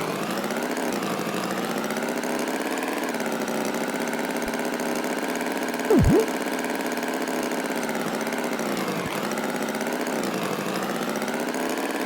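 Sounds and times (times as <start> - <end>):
swooping sound effect: 5.9 - 6.3.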